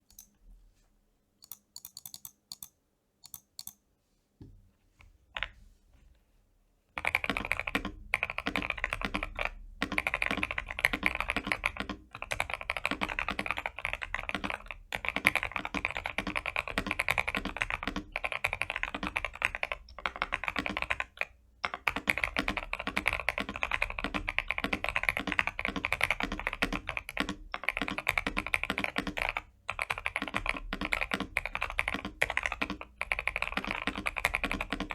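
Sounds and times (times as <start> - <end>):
key clicks: 1.4 - 3.8
mechanical keyboard typing: 1.4 - 3.8, 7.0 - 34.9.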